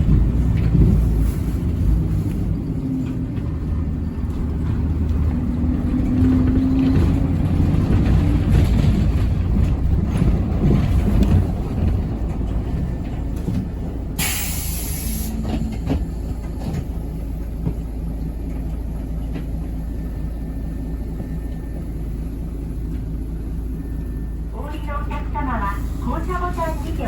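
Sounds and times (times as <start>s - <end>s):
bus engine rumble: 0.0s - 27.0s
hiss of air brakes: 14.2s - 15.6s.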